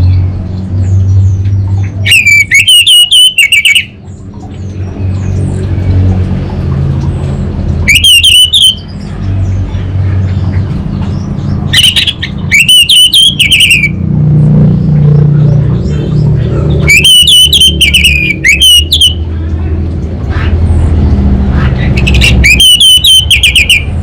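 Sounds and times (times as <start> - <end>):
steady low hum: 0.0 - 24.0
bird calling stuttering high notes: 1.9 - 4.0, 7.8 - 9.0, 11.7 - 14.0, 16.2 - 19.4, 21.6 - 24.0.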